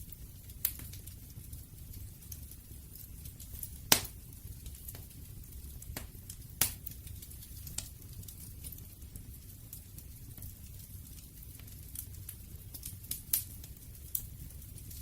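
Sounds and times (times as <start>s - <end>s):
wood fire crackling: 0.0s - 15.0s
fire popping sharply: 3.1s - 7.9s.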